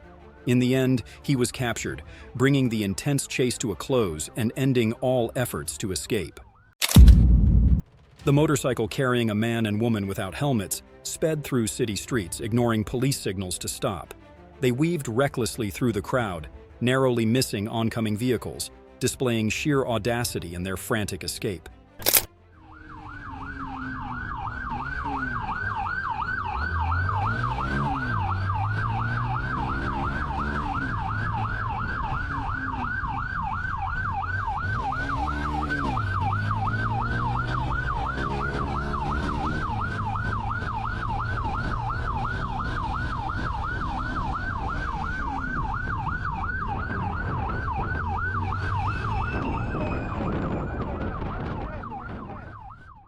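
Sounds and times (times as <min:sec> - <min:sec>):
car engine accelerating: 0:22.6 - 0:52.0
police siren yelping: 0:22.6 - 0:53.0.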